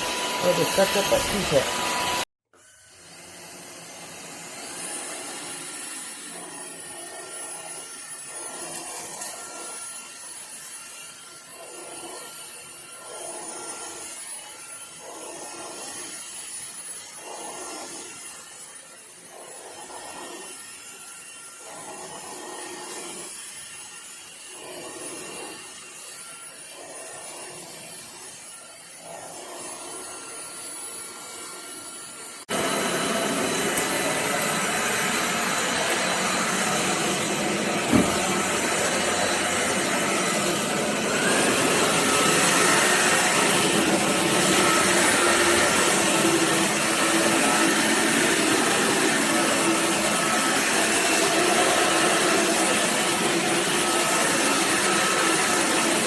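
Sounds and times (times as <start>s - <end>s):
stick vacuum running: 0.0s - 2.2s, 2.9s - 10.7s, 24.5s - 25.8s, 32.2s - 56.0s.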